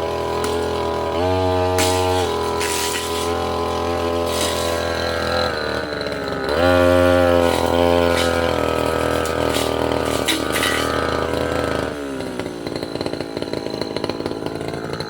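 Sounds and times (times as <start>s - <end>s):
brush cutter engine revving: 0.0s - 15.0s
blade swishing through undergrowth: 0.3s - 5.6s, 6.6s - 11.3s.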